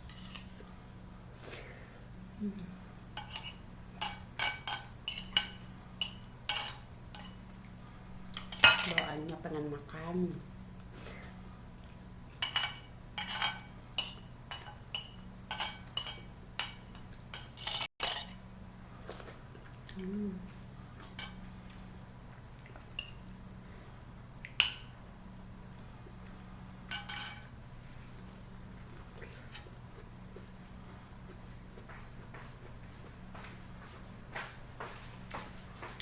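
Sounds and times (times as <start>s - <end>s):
steady low hum: 0.0s - 36.0s
cutlery clinking against dishes: 3.2s - 7.4s, 12.4s - 18.4s, 26.9s - 27.5s.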